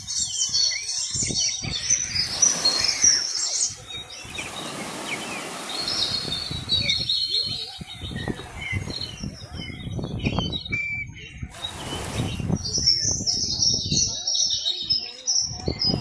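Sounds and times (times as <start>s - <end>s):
small birds chirping: 0.0s - 16.0s
steady rush of noise: 11.4s - 13.6s.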